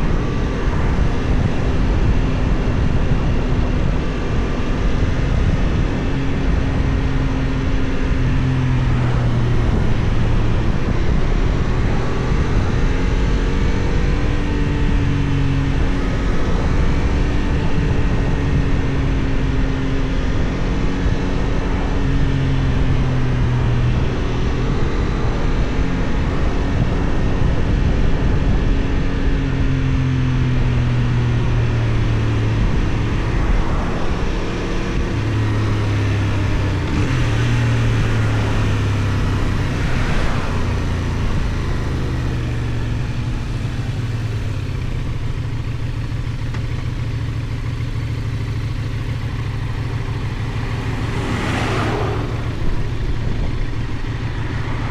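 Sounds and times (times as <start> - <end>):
wind noise on microphone: 0.0 - 45.8, 48.7 - 54.9
motorcycle engine revving: 0.0 - 54.9.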